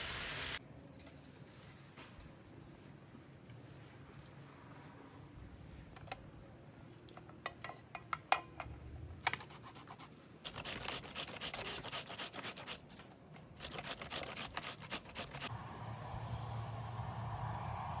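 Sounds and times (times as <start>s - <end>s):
rapid scraping strokes: 13.6s - 15.5s.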